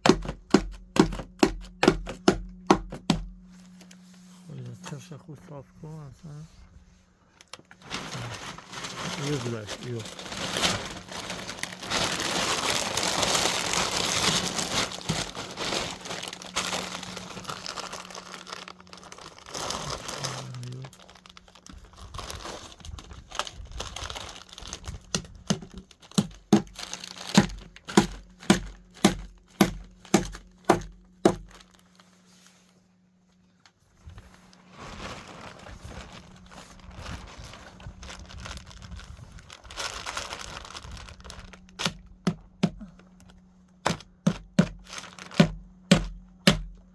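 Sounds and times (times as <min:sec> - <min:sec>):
plastic sheeting crinkling: 0:03.4 - 0:05.2, 0:05.9 - 0:46.9.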